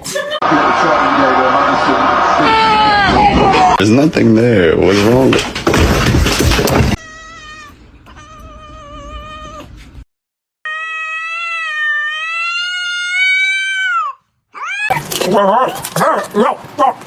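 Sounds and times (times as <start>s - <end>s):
cat meowing: 7.0s - 9.7s, 10.7s - 15.0s
cat yowling: 7.0s - 9.7s, 10.6s - 15.0s.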